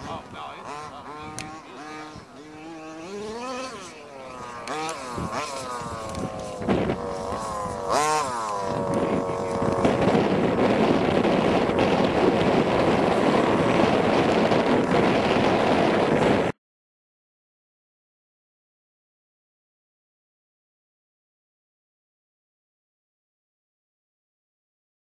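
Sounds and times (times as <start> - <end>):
model car engines revving: 0.0 - 16.3
loud rough engine noise: 0.0 - 16.5.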